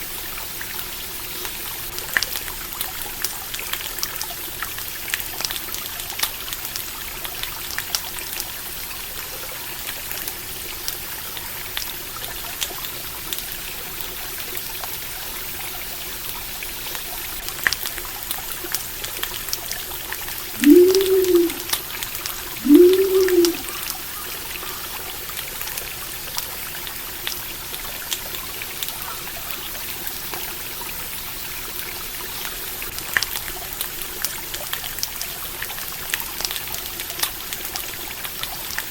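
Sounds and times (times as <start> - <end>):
short low rising and falling calls: 20.6 - 21.7, 22.6 - 23.8.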